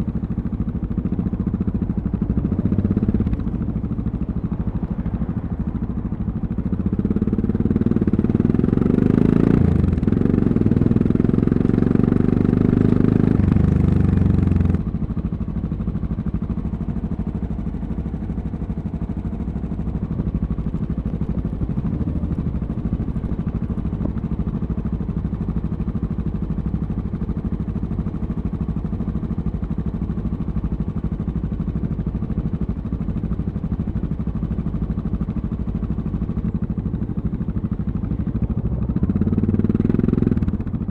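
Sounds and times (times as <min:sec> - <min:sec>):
motorcycle engine revving: 0:07.1 - 0:14.9, 0:38.1 - 0:40.9.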